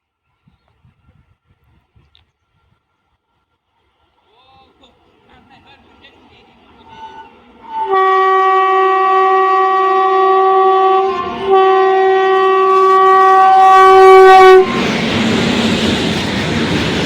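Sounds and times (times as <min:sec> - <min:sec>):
locomotive air horn blasts: 0:07.6 - 0:14.9.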